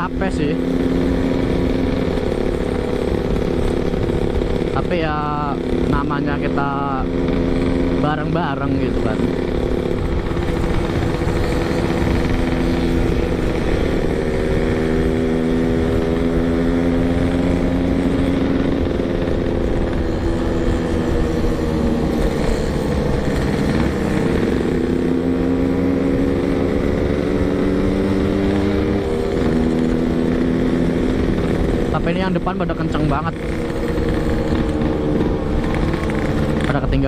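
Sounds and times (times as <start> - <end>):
two-stroke motorcycle engine running: 0.0 - 37.0
wind rumbling on microphone: 8.7 - 37.0.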